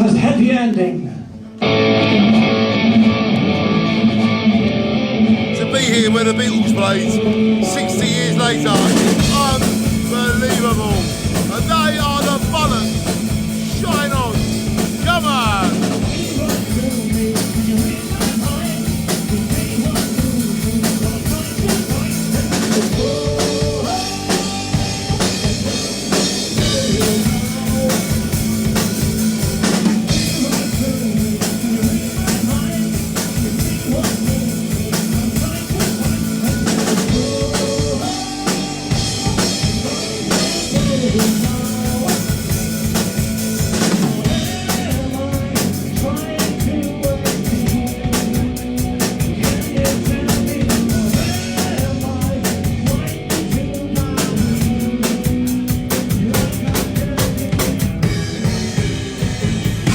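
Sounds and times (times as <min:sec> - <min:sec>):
live rock band playing: 0:01.3 - 0:59.9
drum kit beat: 0:02.3 - 0:59.9.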